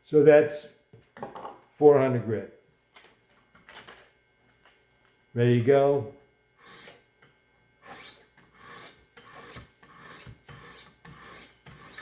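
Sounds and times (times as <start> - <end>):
sharpening stone scraping knife: 6.6 - 7.0, 7.8 - 12.0.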